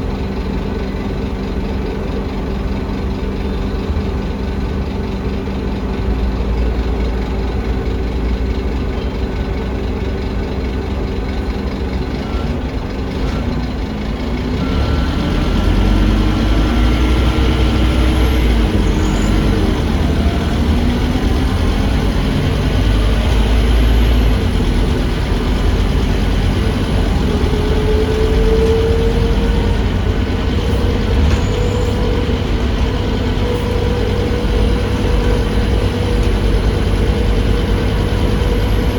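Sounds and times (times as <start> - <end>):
bus diesel engine running: 0.0 - 38.9.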